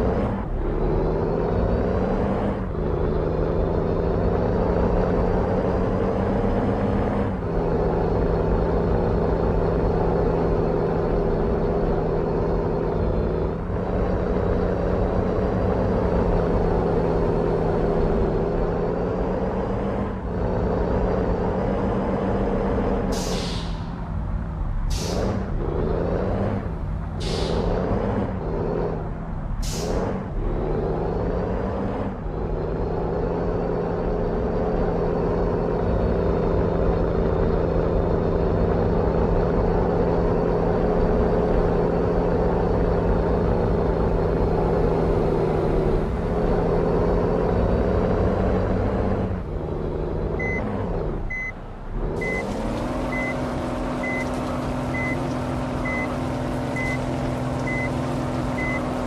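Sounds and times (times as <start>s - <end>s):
truck diesel engine running: 0.0s - 59.0s
brief air hiss: 23.2s - 23.8s, 27.2s - 27.6s
reversing alarm beeping: 50.4s - 50.6s, 52.2s - 52.5s.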